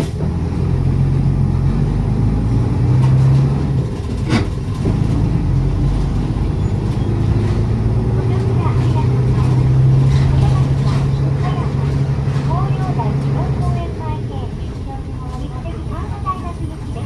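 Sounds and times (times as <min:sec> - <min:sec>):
bus diesel engine running: 0:00.0 - 0:17.0
road noise: 0:00.0 - 0:17.0.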